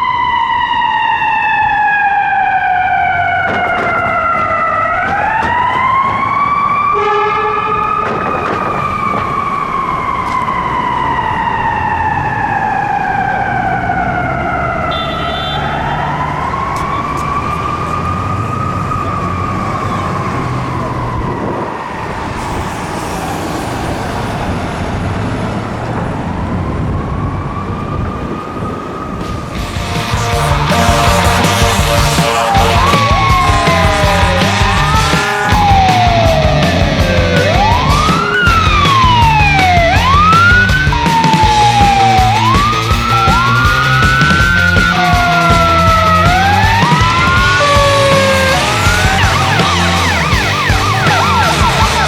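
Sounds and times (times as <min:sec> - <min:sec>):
ambulance siren wailing: 0:00.0 - 0:52.0
low vehicle rumble: 0:02.6 - 0:52.0
short horn blast: 0:07.0 - 0:07.8, 0:14.9 - 0:16.0, 0:29.6 - 0:36.2, 0:47.6 - 0:52.0.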